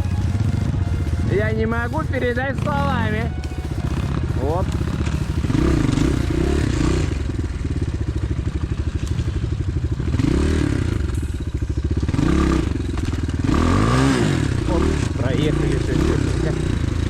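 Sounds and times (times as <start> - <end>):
motorbike engine revving: 0.0 - 17.0.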